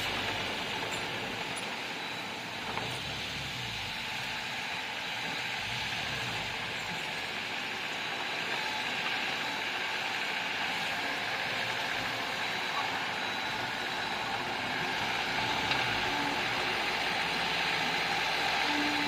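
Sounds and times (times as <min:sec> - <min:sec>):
bulldozer engine running: 0:00.0 - 0:19.0.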